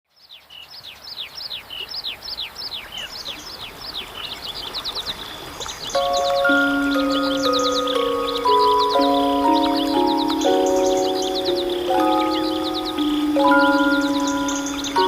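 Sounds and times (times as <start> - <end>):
songbird whistling notes: 4.0 - 15.0
music with held tones: 5.9 - 15.0.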